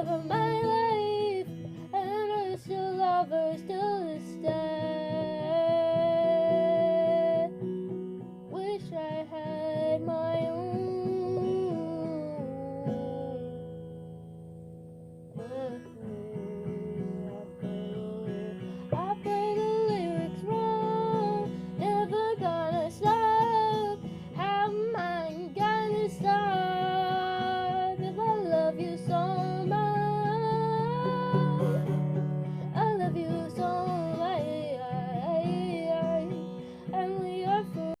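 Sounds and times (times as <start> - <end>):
person singing: 0.0 - 7.6, 15.4 - 38.0
acoustic guitar plucked and strummed: 0.0 - 38.0.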